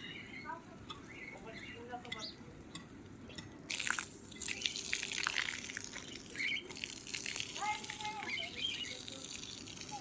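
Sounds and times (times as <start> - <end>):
small water drips: 2.0 - 10.0.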